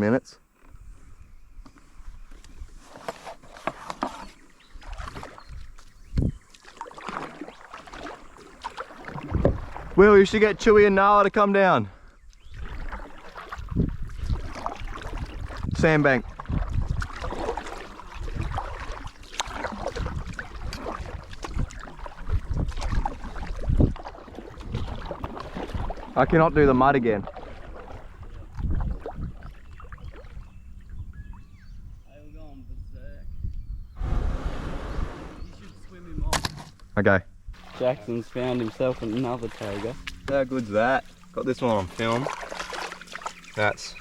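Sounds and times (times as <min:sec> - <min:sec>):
water splashing and sloshing: 0:01.8 - 0:31.4, 0:37.5 - 0:44.0
wind rumbling on microphone: 0:04.3 - 0:06.5, 0:09.0 - 0:11.0, 0:12.1 - 0:37.6.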